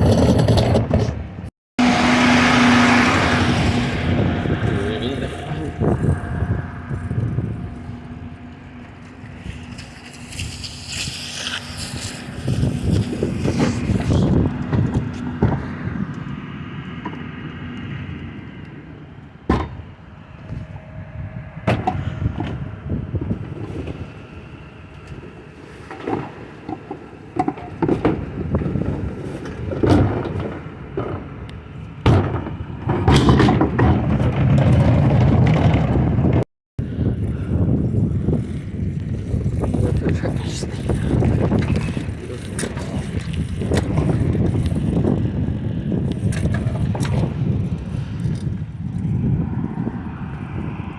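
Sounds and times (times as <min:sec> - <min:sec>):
metal clattering and clanking: 0:00.0 - 0:01.3, 0:25.8 - 0:36.4
truck engine rumble: 0:00.0 - 0:50.9.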